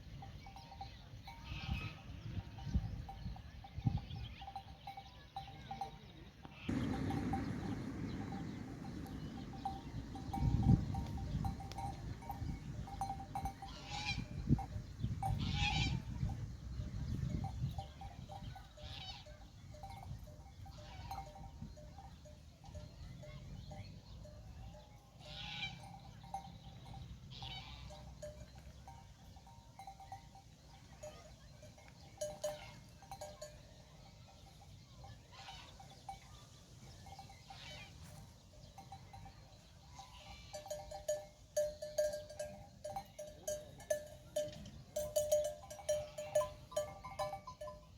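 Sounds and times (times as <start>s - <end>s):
livestock bells clinking: 0.0s - 47.9s
low rumble: 6.7s - 11.7s.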